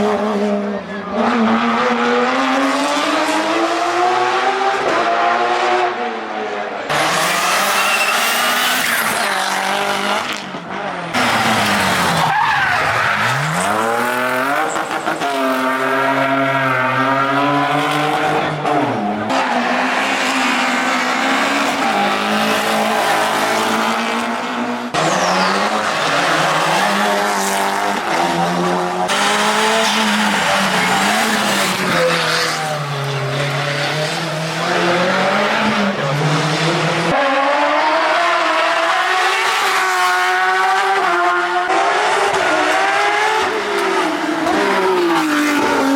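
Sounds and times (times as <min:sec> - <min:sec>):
race car engines revving: 0:00.0 - 0:45.9
tyre squeal: 0:07.6 - 0:09.3, 0:25.0 - 0:25.8.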